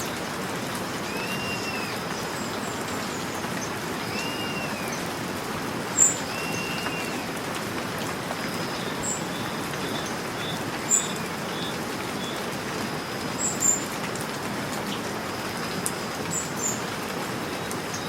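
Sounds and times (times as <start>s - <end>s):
steady rain falling: 0.0s - 18.0s
birds whistling: 1.1s - 2.0s, 4.0s - 5.0s, 6.0s - 7.3s, 8.5s - 12.4s.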